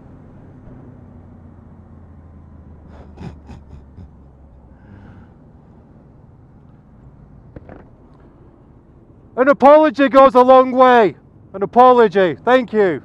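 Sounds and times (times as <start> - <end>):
rider breathing sharply: 2.8 - 3.3, 4.6 - 5.9.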